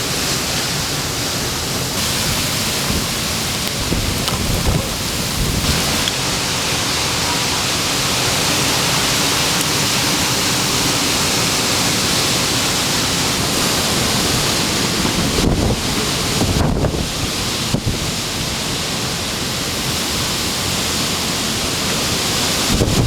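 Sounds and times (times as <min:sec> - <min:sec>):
wind buffeting microphone: 0:02.0 - 0:18.6, 0:22.6 - 0:23.0
storm wind blowing: 0:02.0 - 0:18.7, 0:22.5 - 0:23.0.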